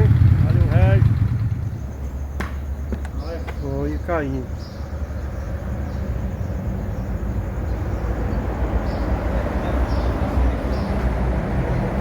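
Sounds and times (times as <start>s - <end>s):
motorcycle engine running: 0.0s - 2.8s.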